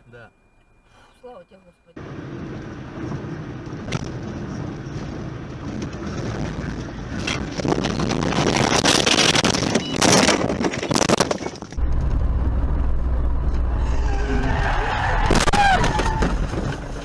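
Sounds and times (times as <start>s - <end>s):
car road and wind noise: 2.0s - 17.0s.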